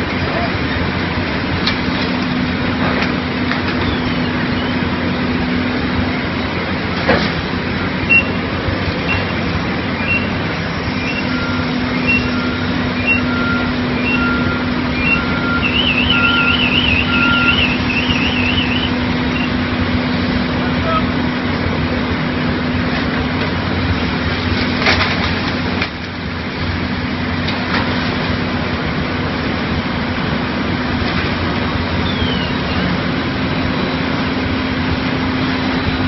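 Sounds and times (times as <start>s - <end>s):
heavy engines humming: 0.0s - 36.0s
back-up alarms beeping: 7.8s - 19.6s
warbling alarm: 10.9s - 19.7s.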